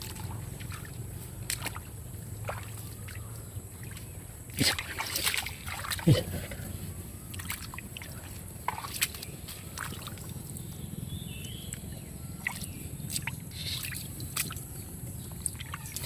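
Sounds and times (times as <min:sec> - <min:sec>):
shallow water splashing: 0:00.0 - 0:10.6.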